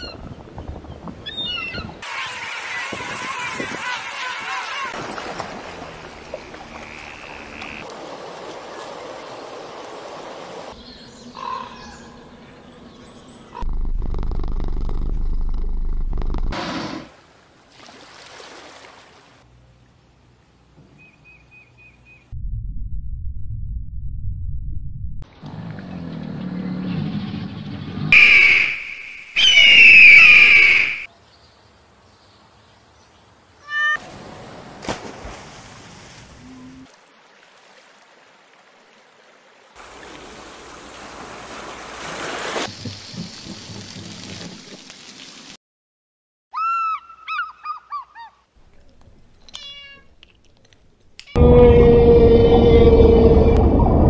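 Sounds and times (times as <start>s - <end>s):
hawk screaming: 2.0s - 5.0s, 28.2s - 31.1s, 51.4s - 53.8s
cat purring: 13.7s - 16.5s
low rumble: 22.3s - 25.3s, 51.4s - 54.0s.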